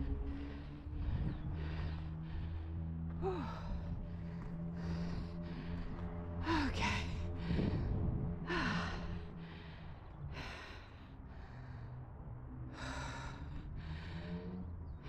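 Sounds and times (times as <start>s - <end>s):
low steady hum: 0.0s - 15.0s
person breathing hard: 0.0s - 15.0s.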